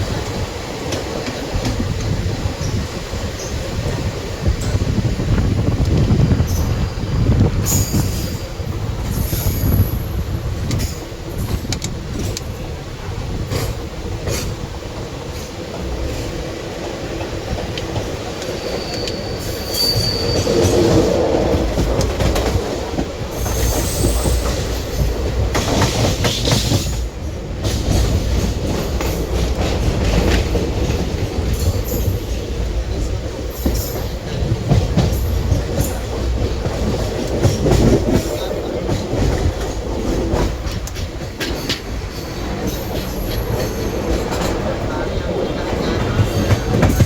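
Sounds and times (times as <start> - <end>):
train coaches rumbling: 0.0 - 47.0
wheels clattering over rail joints: 15.2 - 47.0
high-pitched wheel squeals: 18.5 - 20.7.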